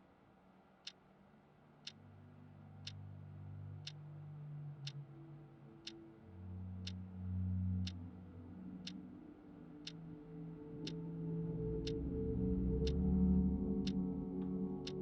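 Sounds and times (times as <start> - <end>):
quiet even ticking: 2.8 - 3.0, 3.8 - 4.0, 7.8 - 8.0
low sustained drone: 3.6 - 15.0.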